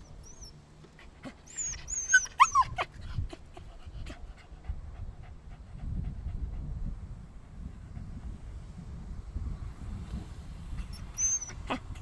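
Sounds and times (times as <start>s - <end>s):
dog whimpering: 0.0s - 3.7s, 10.9s - 12.0s.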